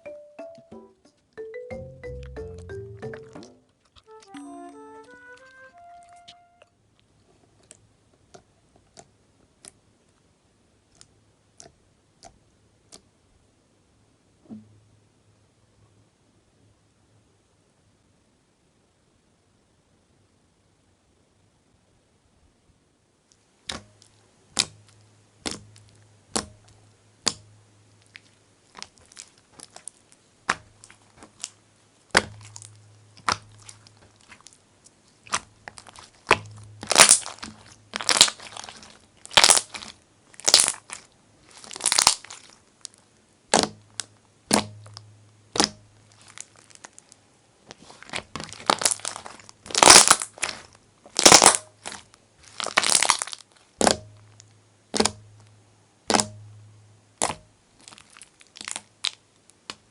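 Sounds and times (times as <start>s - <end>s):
slime clicking and squishing: 7.6s - 9.9s, 10.8s - 13.1s, 23.6s - 56.6s, 57.2s - 59.9s.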